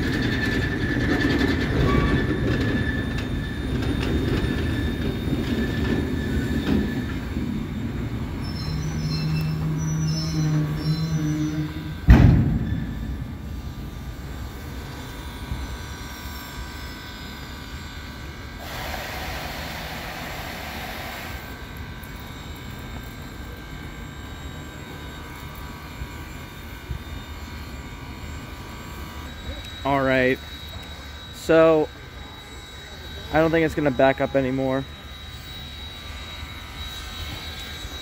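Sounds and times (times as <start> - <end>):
steady mechanical hum: 0.0 - 38.0
train wheel squeal: 0.0 - 38.0
loud bang: 12.1 - 13.4
hiss: 18.6 - 21.6.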